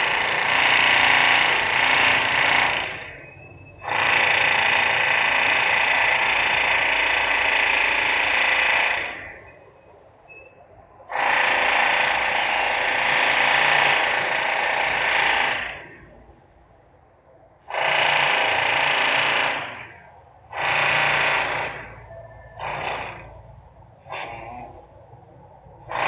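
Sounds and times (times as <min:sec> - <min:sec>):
harsh power tool bursts: 0:00.0 - 0:09.5, 0:11.1 - 0:16.0, 0:17.7 - 0:23.4.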